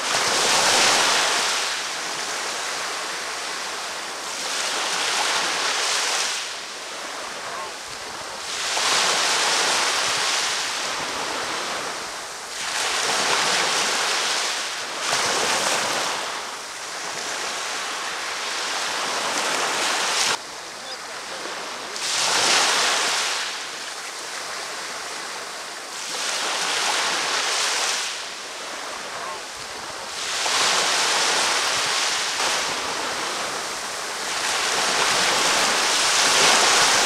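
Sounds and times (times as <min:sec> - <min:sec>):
ocean surf breaking on beach: 0:00.0 - 0:37.0.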